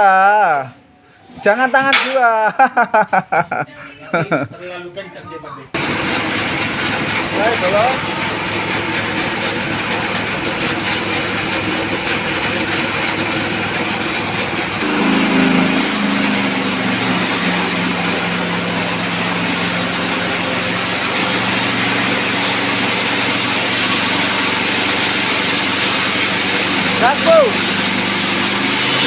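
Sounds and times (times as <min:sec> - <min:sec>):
band saw cutting log: 0:05.8 - 0:29.0
humming tone: 0:14.8 - 0:17.0.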